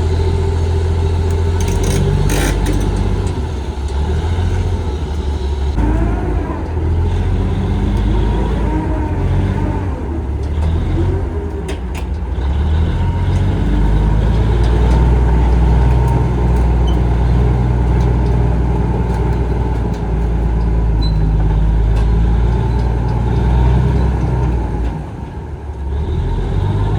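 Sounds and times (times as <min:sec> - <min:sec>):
bulldozer diesel engine running: 0:00.0 - 0:26.9
sharp metallic clicks: 0:01.2 - 0:04.0.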